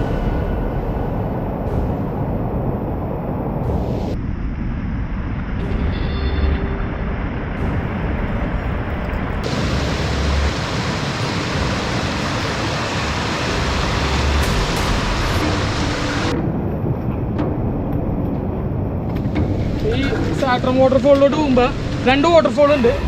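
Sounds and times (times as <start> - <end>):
water rushing: 7.6 - 16.4.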